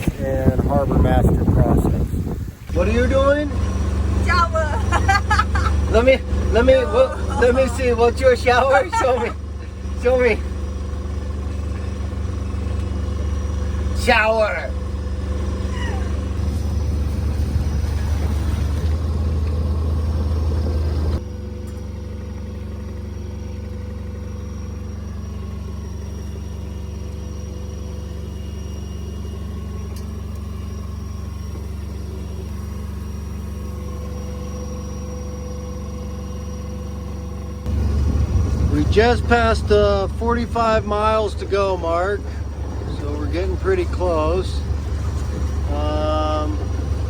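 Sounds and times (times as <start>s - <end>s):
boat engine droning: 0.0s - 47.0s.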